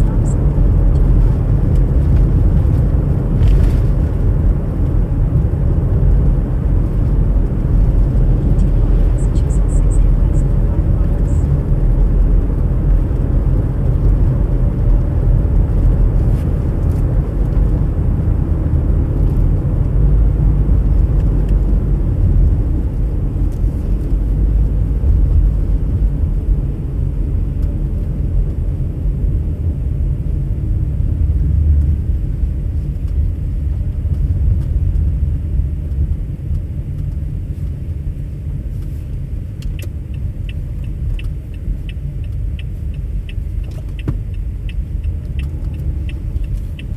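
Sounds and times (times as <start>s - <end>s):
car engine and road noise: 0.0s - 46.9s
light ticks: 38.7s - 46.9s.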